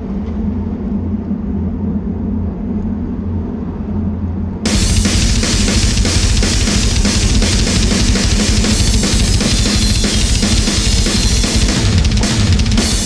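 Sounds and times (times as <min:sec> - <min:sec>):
cymbals: 0:04.7 - 0:13.0
loud band music: 0:04.7 - 0:13.0
rapid bass drum strikes: 0:04.7 - 0:13.0.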